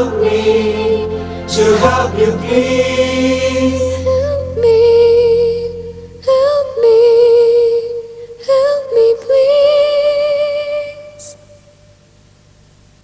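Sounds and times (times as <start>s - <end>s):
wordless melody with vibrato: 0.0s - 8.0s.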